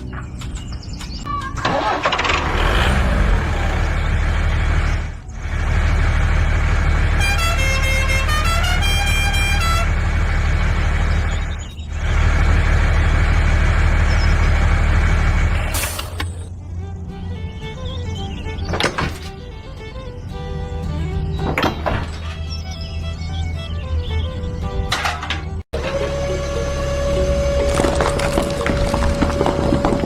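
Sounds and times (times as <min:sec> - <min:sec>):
truck engine rumbling: 0:00.0 - 0:30.0
horn playing changing notes: 0:07.2 - 0:09.9.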